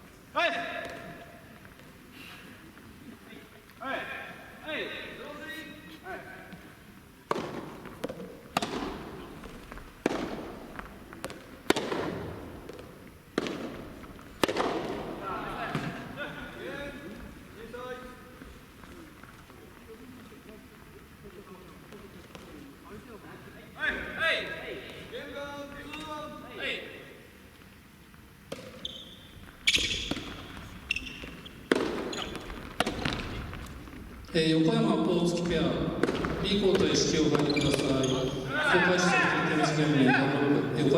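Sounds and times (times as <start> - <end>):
shoes squeaking on court floor: 5.1 - 23.2, 27.4 - 34.4, 35.2 - 40.9
tennis ball bouncing: 7.2 - 16.2, 28.5 - 34.2, 35.4 - 38.4
racket striking tennis ball: 7.3 - 16.2, 28.5 - 28.8, 29.7 - 34.0, 35.7 - 37.9.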